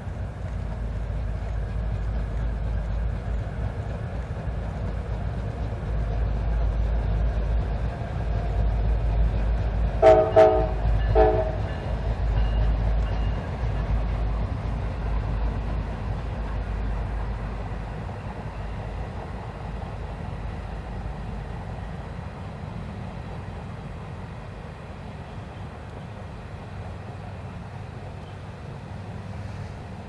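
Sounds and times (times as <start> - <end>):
diesel train rumbling: 0.0 - 30.0
locomotive horn blasts: 10.0 - 11.9.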